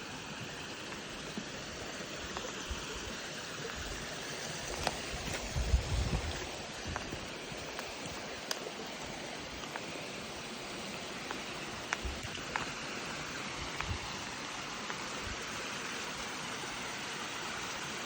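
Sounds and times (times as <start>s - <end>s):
footsteps on rocky dirt trail: 4.5s - 8.2s.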